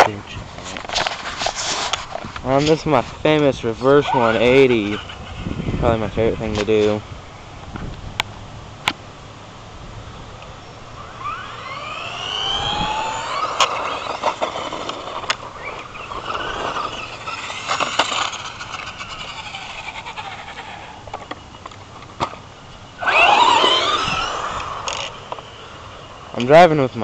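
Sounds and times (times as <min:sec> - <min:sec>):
electric rc truck motor whining: 0:03.5 - 0:06.9, 0:10.7 - 0:21.8, 0:22.7 - 0:26.5.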